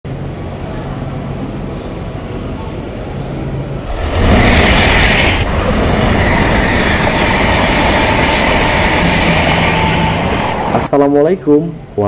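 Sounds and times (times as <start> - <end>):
high-speed train rushing: 0.1 - 12.0.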